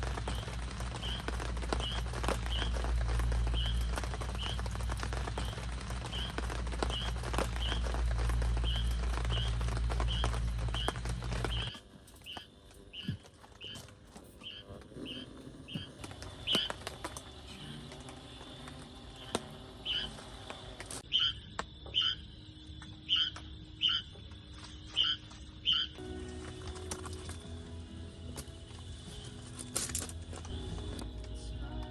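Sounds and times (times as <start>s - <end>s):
animal chirping: 8.6s - 16.9s, 19.2s - 20.2s, 21.1s - 22.3s, 23.0s - 24.2s, 24.9s - 26.0s.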